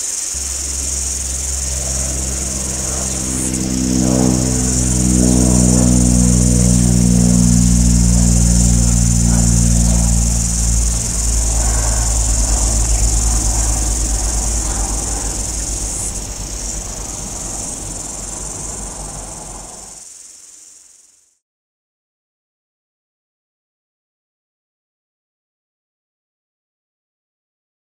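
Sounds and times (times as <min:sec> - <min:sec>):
low droning hum: 0:00.0 - 0:20.0
high insect chorus: 0:00.0 - 0:21.3.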